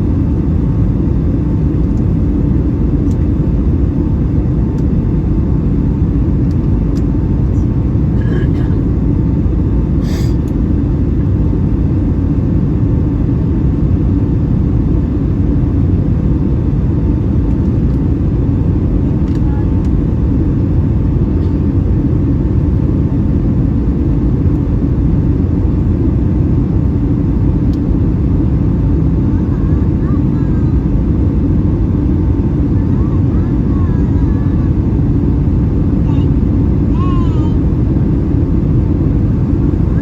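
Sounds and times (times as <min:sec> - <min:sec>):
aircraft cabin engine roar: 0:00.0 - 0:40.0
faint steady hum: 0:00.0 - 0:40.0.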